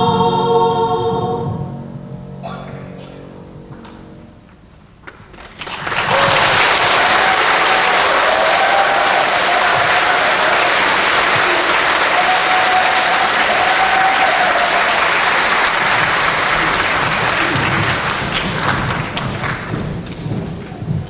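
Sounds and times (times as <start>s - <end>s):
audience applauding: 5.1s - 21.0s.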